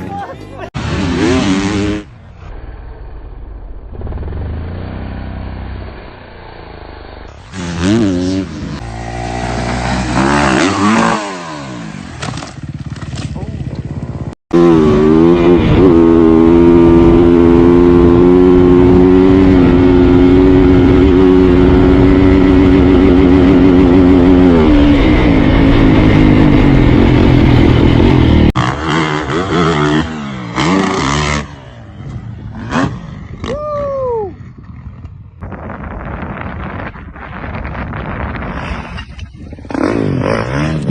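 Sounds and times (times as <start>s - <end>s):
dirt bike engine revving: 0.8s - 2.2s, 7.3s - 33.7s, 39.5s - 40.9s.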